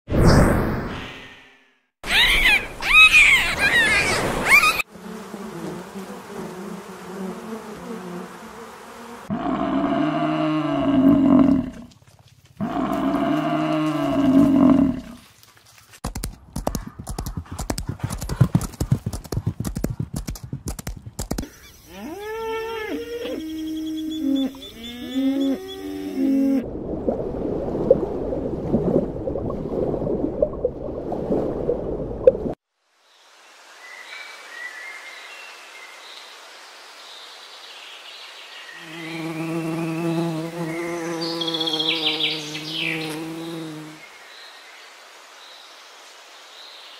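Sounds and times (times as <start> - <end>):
long low animal calls: 2.0 - 4.8, 12.6 - 15.2, 21.4 - 26.7
pitched animal calls: 2.0 - 4.8
high sliding animal calls: 2.0 - 4.9
horse hoofbeats running: 15.3 - 21.5.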